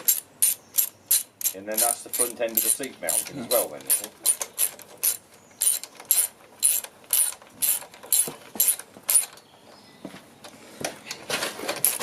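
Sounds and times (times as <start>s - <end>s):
ratchet wrench clicking: 0.0s - 9.3s.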